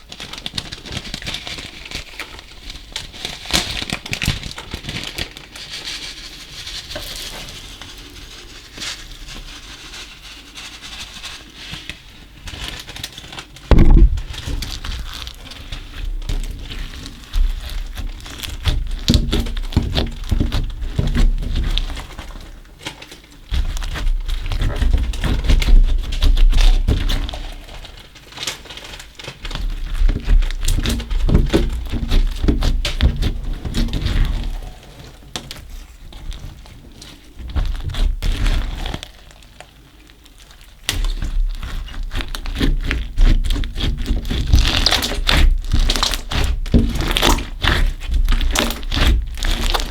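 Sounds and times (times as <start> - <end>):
soft thunks: 13.7 - 14.4
slime crackling and clicking: 40.6 - 49.9.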